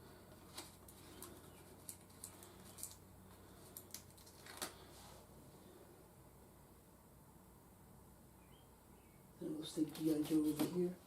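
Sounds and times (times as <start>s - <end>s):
light handling clicks and rustles: 0.3s - 4.9s.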